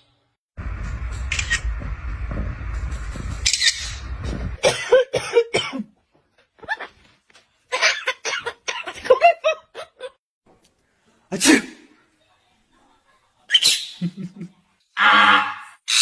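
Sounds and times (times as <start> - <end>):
parrot squawking and chattering: 3.5 - 4.0, 13.5 - 14.0.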